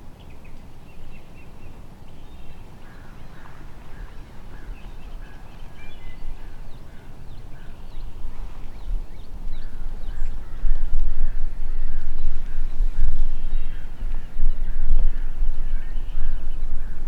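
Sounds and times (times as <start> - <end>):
faint bird calls and chirps: 0.0 - 17.0
wind rumble on microphone: 0.0 - 17.0.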